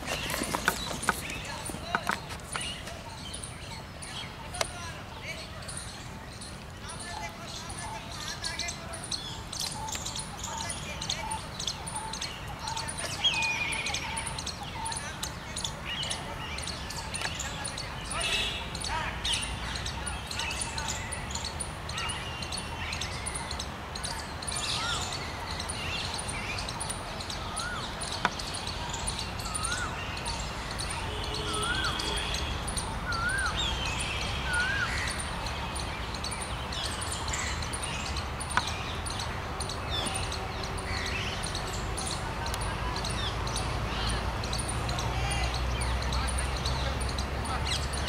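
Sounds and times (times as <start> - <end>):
higher bird chirps: 0.0 - 48.0
bird whistling: 29.0 - 35.3.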